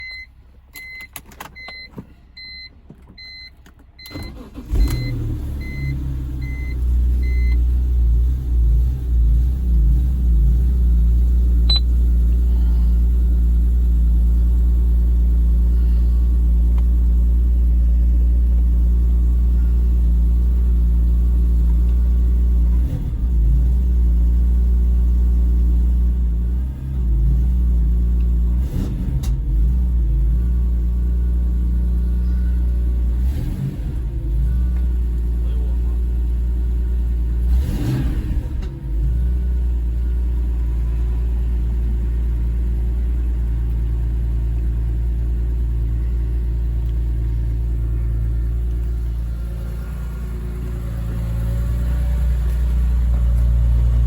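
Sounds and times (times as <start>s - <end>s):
car engine cranking and idling: 0.0s - 54.0s.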